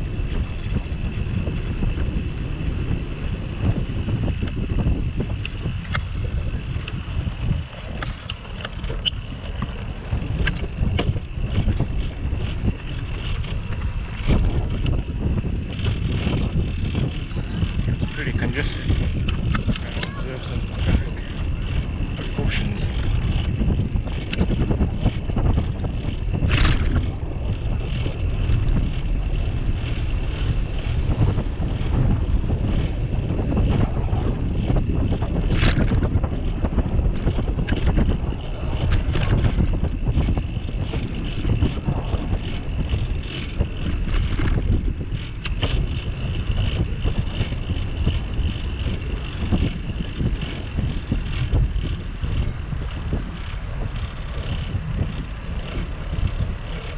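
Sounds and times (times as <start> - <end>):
road and traffic noise: 0.0 - 56.9
wind rumbling on microphone: 0.0 - 56.9.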